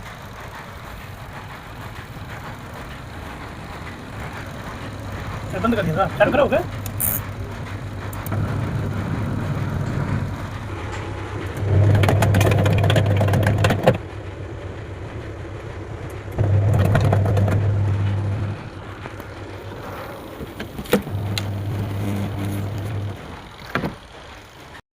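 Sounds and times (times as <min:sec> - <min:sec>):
washing machine motor humming: 0:00.0 - 0:24.8
sharp clicks: 0:00.9 - 0:11.6.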